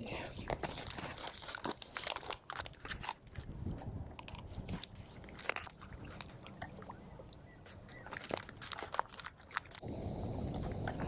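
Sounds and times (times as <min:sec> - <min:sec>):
crackling and clicking: 0:07.9 - 0:09.9
faint low rumble: 0:09.8 - 0:11.0.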